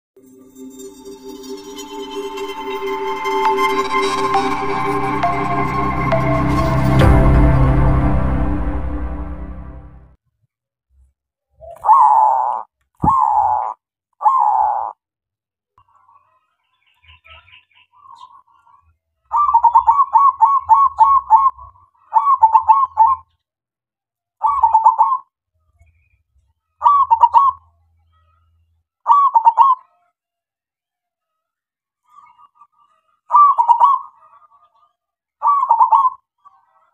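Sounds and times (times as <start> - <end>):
dove cooing: 11.6 - 15.0, 19.3 - 23.2, 24.4 - 25.2, 26.8 - 27.6, 29.1 - 29.9, 33.3 - 34.5, 35.4 - 36.2.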